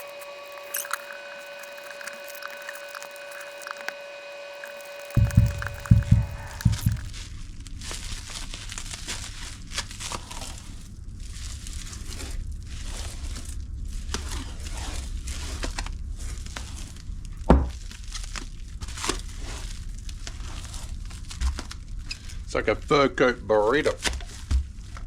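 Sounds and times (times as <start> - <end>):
packing material crinkling: 0.0 - 7.1.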